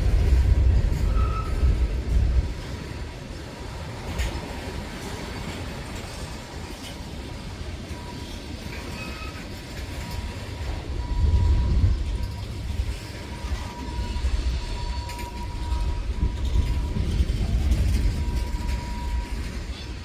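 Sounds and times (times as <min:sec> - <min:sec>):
freight train rumbling on rails: 0:00.0 - 0:20.0
wheels clicking over rail joints: 0:00.0 - 0:20.0
faint thin wheel squeal: 0:01.1 - 0:01.6, 0:08.2 - 0:10.2.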